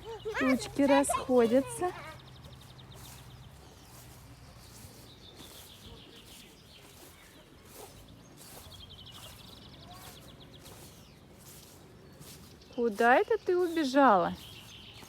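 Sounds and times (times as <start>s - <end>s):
songbird trilling: 8.4s - 15.0s.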